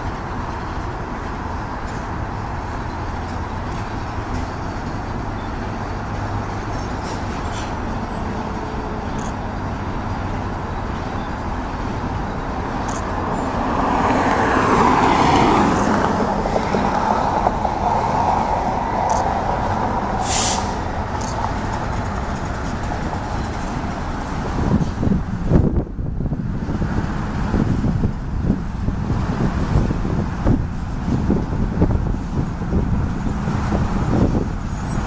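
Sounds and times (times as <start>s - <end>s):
train wheels rumbling on rails: 0.0s - 35.0s
short hiss: 20.2s - 20.9s.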